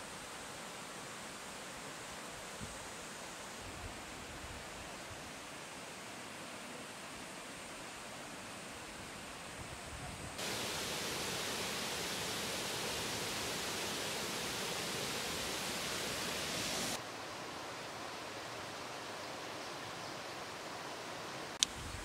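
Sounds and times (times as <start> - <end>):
mountain stream rushing: 10.4 - 17.6.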